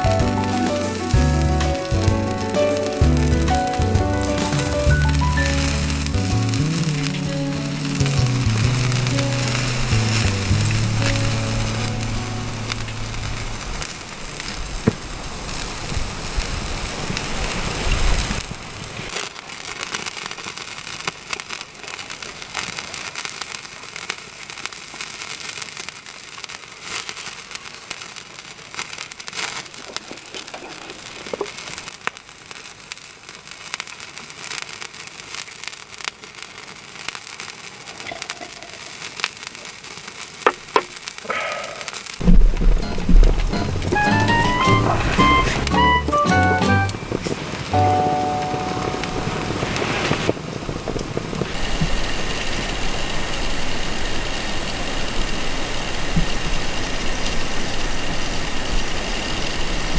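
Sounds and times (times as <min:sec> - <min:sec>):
wood fire crackling: 0:00.0 - 0:59.9
low rumble: 0:03.0 - 0:13.8.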